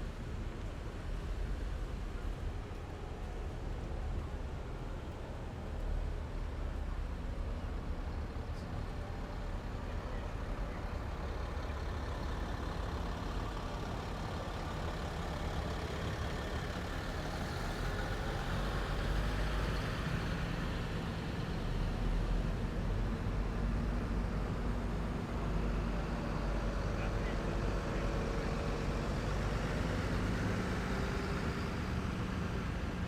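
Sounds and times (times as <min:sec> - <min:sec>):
heavy vehicles driving past: 0:06.5 - 0:33.0.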